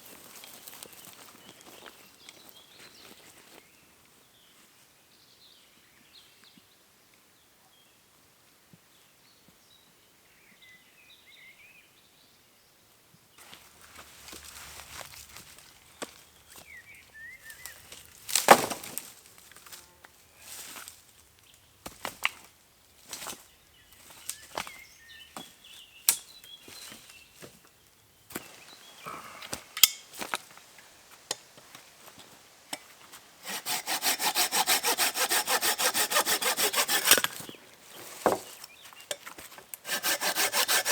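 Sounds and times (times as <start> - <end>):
small birds chirping: 15.9 - 18.2, 23.3 - 29.9, 37.0 - 39.3.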